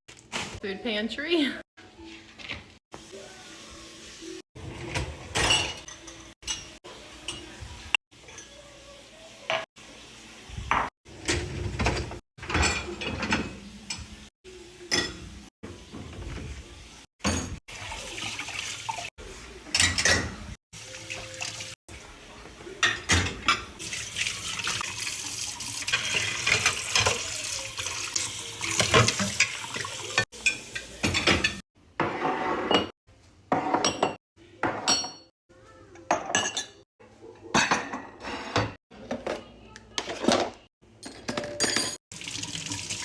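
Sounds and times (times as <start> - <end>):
dishes and cutlery clinking: 4.9 - 7.6, 10.7 - 14.2, 14.9 - 15.3, 19.7 - 20.5, 22.8 - 23.8, 28.7 - 32.9, 33.5 - 35.3, 36.1 - 36.8, 37.4 - 42.0
tap water running: 13.2 - 19.1, 20.8 - 22.1, 23.2 - 31.6, 42.1 - 43.0.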